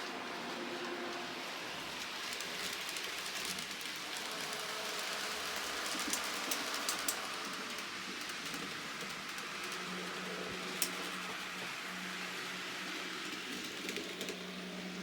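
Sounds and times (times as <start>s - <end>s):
model train rushing on track: 0.0s - 15.0s.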